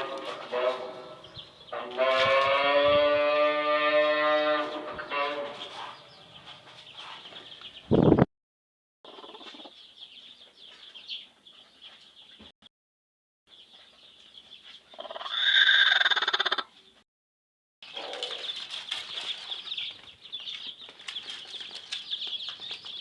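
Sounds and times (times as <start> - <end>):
chicks peeping: 5.6 - 8.2, 9.1 - 12.4, 13.5 - 15.4, 17.8 - 23.0.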